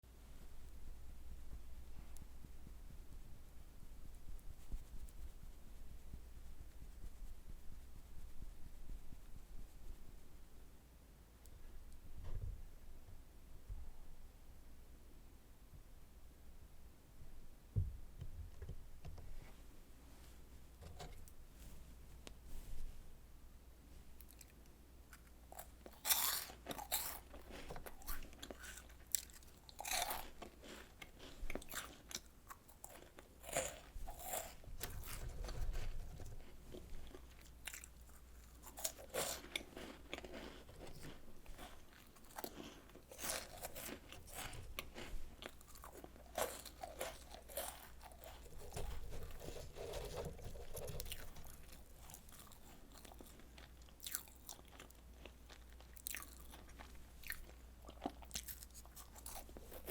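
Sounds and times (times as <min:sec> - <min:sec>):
crunching and chewing cookies: 0:24.2 - 0:59.9.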